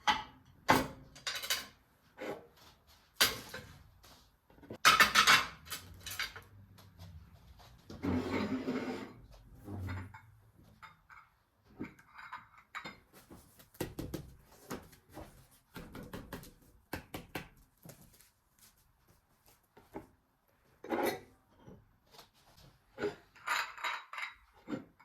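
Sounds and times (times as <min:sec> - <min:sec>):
soft rustling: 0:17.7 - 0:19.9.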